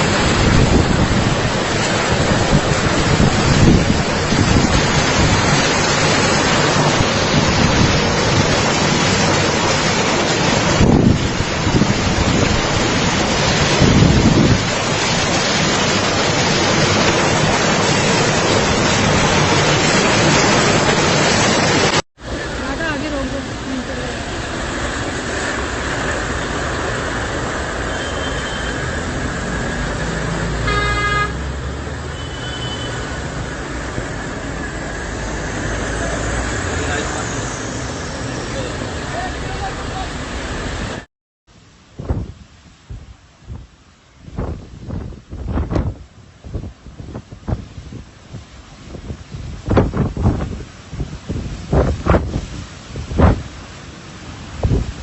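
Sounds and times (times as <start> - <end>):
wind buffeting microphone: 0.0 - 9.7, 10.4 - 20.6, 41.9 - 53.7, 54.3 - 55.0
rush of wind and water: 0.0 - 55.0
vehicle horn honking: 30.6 - 31.4, 32.1 - 33.0.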